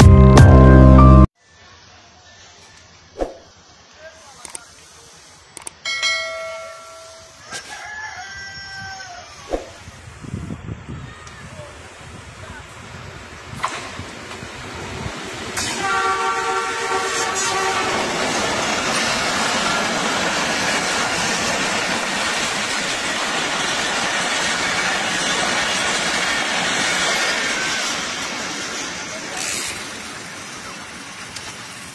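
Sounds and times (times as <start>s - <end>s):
train wheels on rails: 11.3s - 31.9s
locomotive horn blast: 15.6s - 18.2s.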